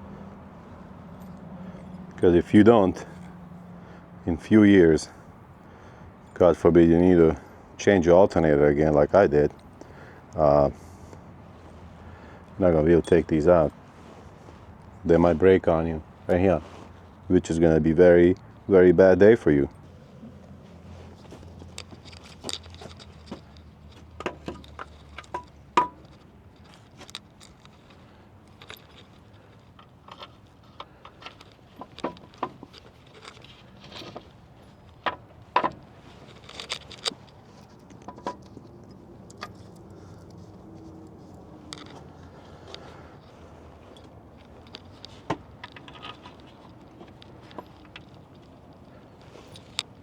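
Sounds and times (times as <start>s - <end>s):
metallic clicks of hand tools: 21.4s - 40.4s.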